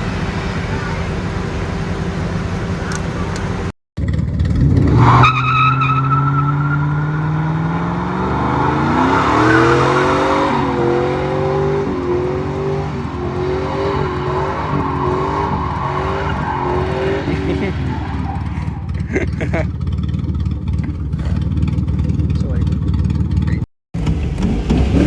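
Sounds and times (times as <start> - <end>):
engine revving on rev limiter: 4.4 - 17.9, 24.0 - 25.0
tyre squeal: 5.0 - 7.4.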